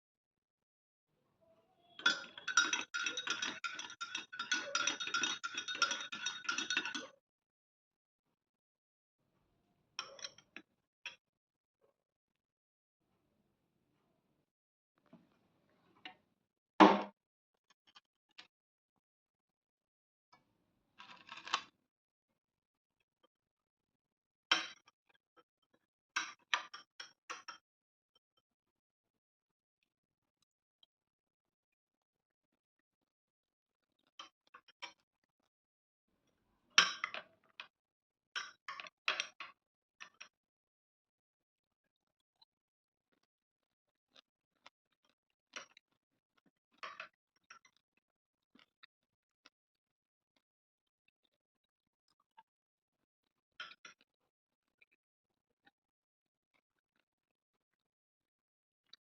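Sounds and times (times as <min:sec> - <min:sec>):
metal utensil clinking against bowl: 0:01.9 - 0:07.1.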